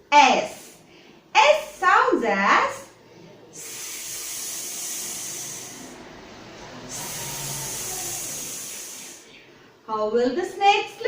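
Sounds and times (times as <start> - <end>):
woman making hissing sound: 3.6 - 6.0, 6.9 - 9.3.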